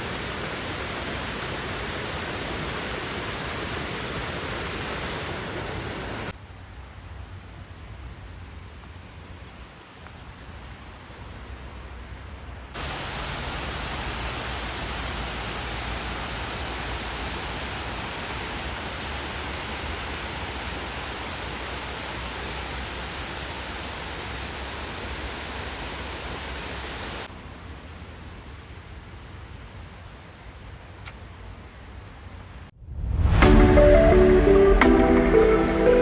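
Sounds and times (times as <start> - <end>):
waterfall rushing: 0.0 - 6.3, 12.8 - 27.4.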